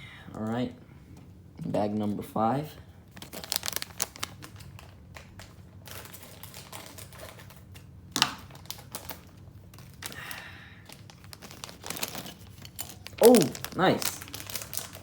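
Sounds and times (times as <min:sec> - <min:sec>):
plastic bag crinkling: 0:03.1 - 0:15.0.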